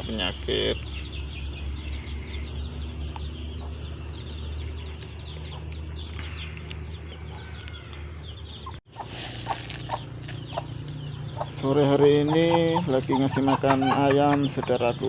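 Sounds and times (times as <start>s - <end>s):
chicks peeping: 0.0s - 15.0s
hens clucking: 8.6s - 15.0s.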